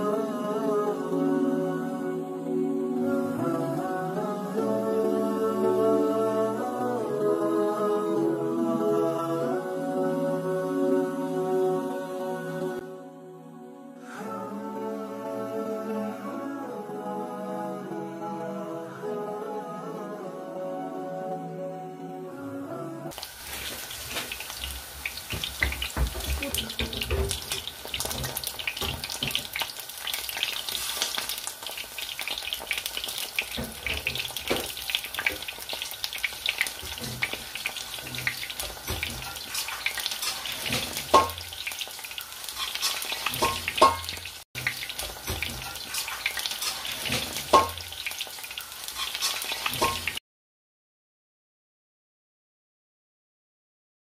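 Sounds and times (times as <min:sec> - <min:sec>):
fritters sizzling in hot oil: 0:23.1 - 0:50.2.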